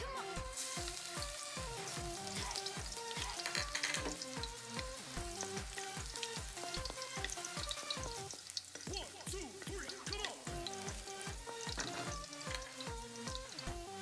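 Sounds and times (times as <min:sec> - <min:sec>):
electronic background music: 0:00.0 - 0:14.0
garlic sizzling in hot oil: 0:00.0 - 0:14.0
wooden spatula stirring: 0:06.1 - 0:13.6.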